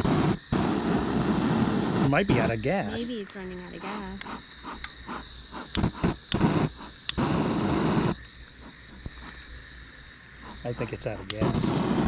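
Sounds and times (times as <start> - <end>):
rushing gas noise: 0.0 - 12.0
gas torch igniter clicking: 3.3 - 9.6, 10.4 - 12.0.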